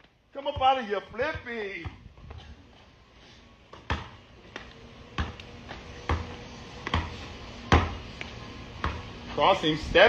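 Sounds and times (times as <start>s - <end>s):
basketball bouncing on a court: 0.4s - 2.4s, 3.7s - 8.0s, 8.8s - 9.2s.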